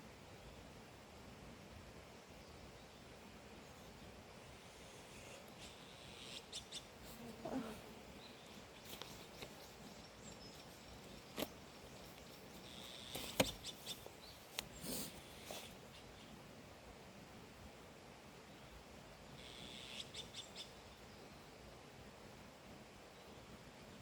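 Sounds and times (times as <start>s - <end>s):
small clicks and rustles: 8.4s - 16.1s.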